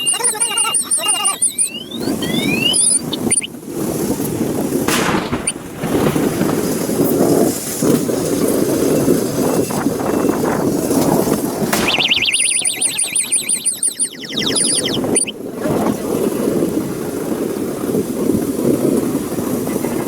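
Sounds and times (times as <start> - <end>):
siren warbling fast: 0.0 - 3.5, 11.8 - 15.3.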